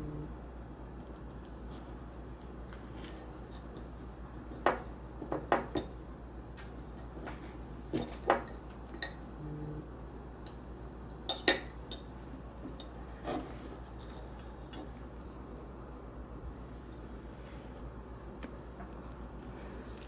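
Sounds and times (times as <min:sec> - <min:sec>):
low steady hum: 0:00.0 - 0:20.0
dishes and cutlery clinking: 0:11.3 - 0:12.1.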